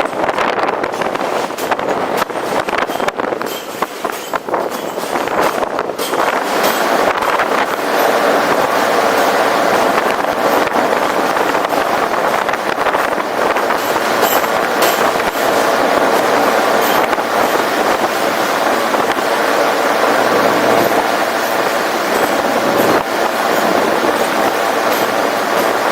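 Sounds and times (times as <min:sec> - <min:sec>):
subway train wheels rushing: 0:00.0 - 0:25.9.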